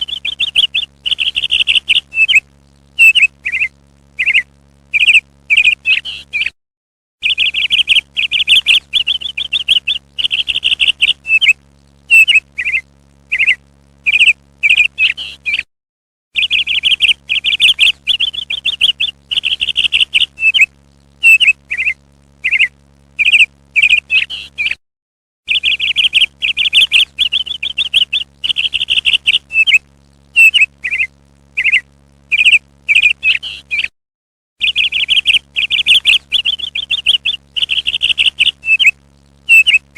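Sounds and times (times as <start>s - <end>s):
parrot chirps and trills: 0.0s - 6.6s, 7.2s - 15.7s, 16.4s - 24.8s, 25.5s - 29.8s, 30.4s - 33.9s, 34.6s - 39.9s.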